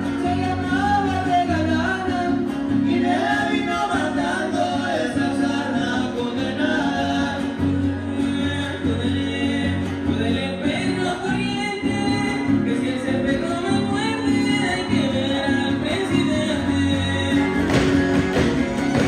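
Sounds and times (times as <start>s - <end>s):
strummed guitars: 0.0s - 19.0s
violin melody: 16.9s - 19.0s.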